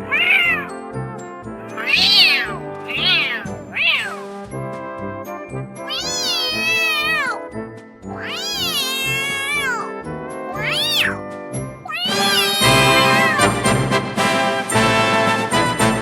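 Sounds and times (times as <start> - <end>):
cat meowing: 0.1 - 0.7, 1.8 - 4.3, 5.9 - 7.4, 8.2 - 9.9, 10.5 - 11.2, 11.8 - 13.5
background music with steady beat: 0.7 - 5.9, 11.2 - 16.0.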